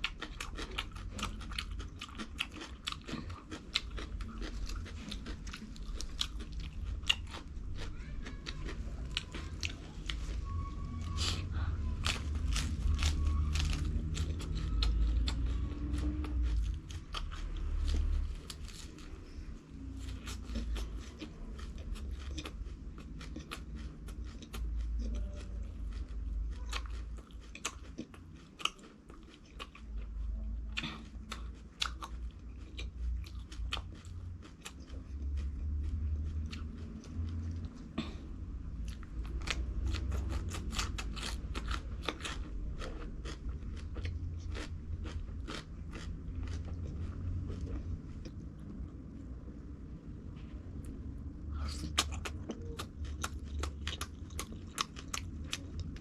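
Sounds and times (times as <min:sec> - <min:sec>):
crunchy chewing: 0:00.0 - 0:49.0, 0:51.6 - 0:56.0
low rumble: 0:29.8 - 0:56.0.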